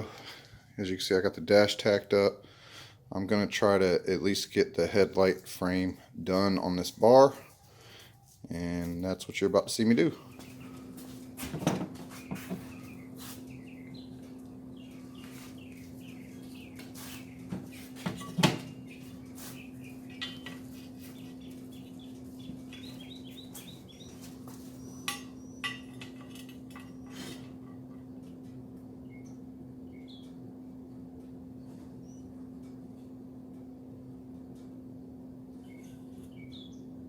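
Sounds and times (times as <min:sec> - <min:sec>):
steady low hum: 0:00.0 - 0:37.0
small birds chirping: 0:10.0 - 0:11.4, 0:12.0 - 0:26.1, 0:29.0 - 0:31.0, 0:31.6 - 0:32.8, 0:35.6 - 0:37.0.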